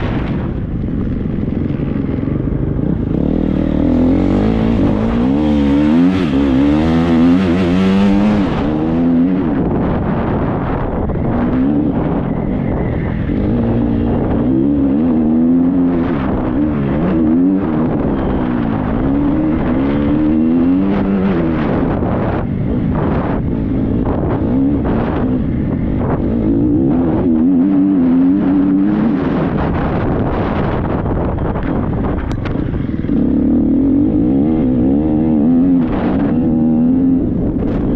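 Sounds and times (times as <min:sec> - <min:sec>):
motocross bike engine revving: 0:01.6 - 0:09.8.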